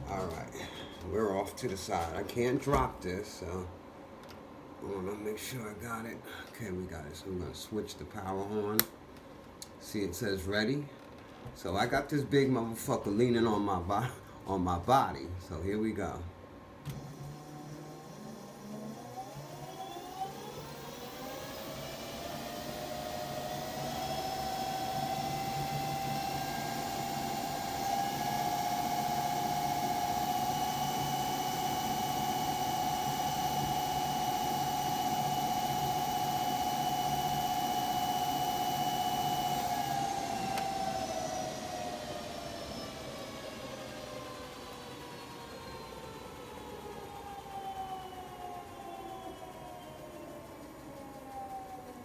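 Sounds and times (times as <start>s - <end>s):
electric motor whine: 16.9s - 50.6s
steady low hum: 20.6s - 42.8s.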